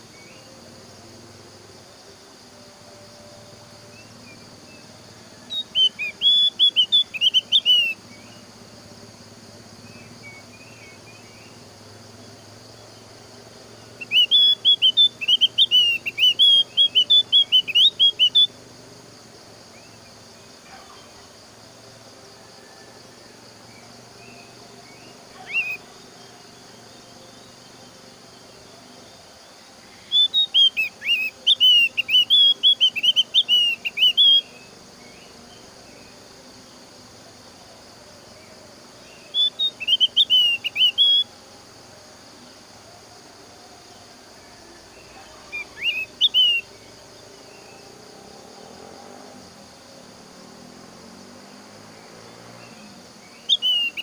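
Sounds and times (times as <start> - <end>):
steady insect drone: 0.0 - 54.0
bird high twittering chirps: 5.5 - 8.4, 13.9 - 18.6, 30.0 - 34.6, 39.3 - 41.3, 45.1 - 46.8, 53.3 - 54.0.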